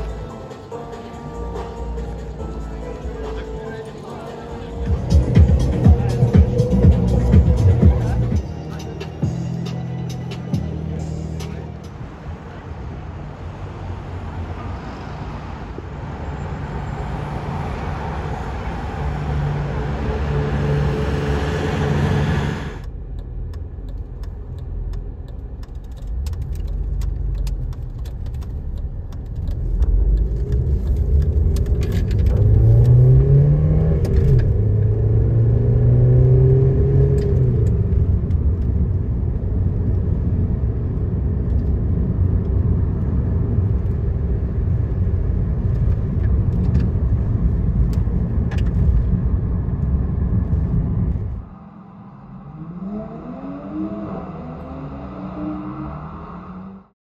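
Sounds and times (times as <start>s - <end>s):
car engines on street: 0.0s - 57.0s
engine revving: 18.5s - 22.9s, 31.2s - 37.9s, 51.3s - 56.9s.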